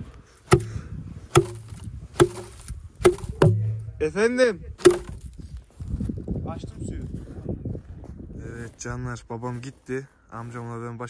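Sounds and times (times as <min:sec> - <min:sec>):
tool chopping ice: 0:00.5 - 0:03.8, 0:04.8 - 0:05.2.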